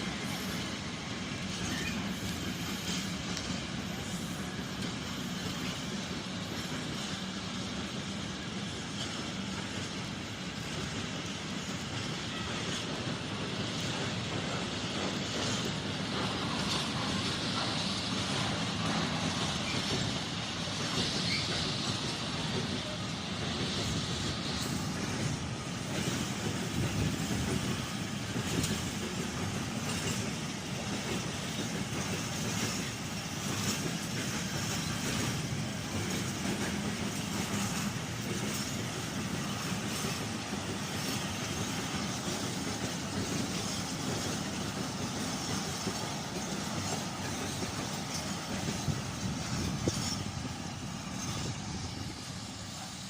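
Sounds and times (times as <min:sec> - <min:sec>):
train wheels on rails: 0:00.0 - 0:53.0.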